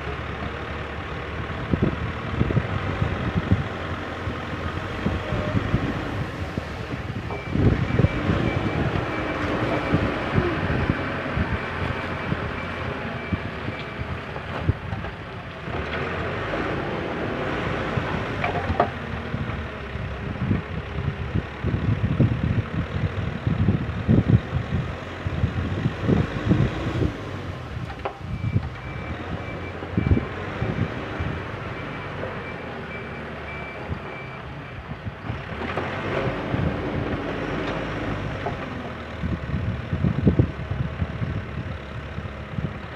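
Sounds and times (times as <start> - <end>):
diesel engine working: 0.0 - 42.9
reversing alarm beeping: 7.3 - 14.2, 28.3 - 30.3.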